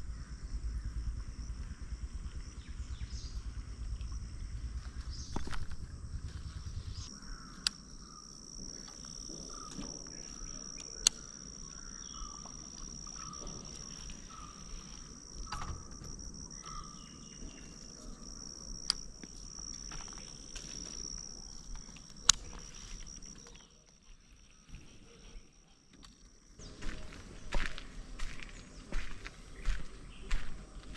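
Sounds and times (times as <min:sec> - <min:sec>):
insects buzzing: 0:00.0 - 0:30.9
sharp clicks: 0:10.7 - 0:11.4, 0:18.8 - 0:19.8, 0:21.6 - 0:23.4.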